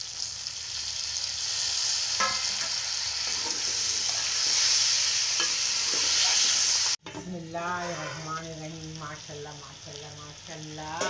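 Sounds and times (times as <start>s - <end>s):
hot oil sizzling: 0.0s - 11.0s
spoon scraping pot: 7.6s - 8.5s.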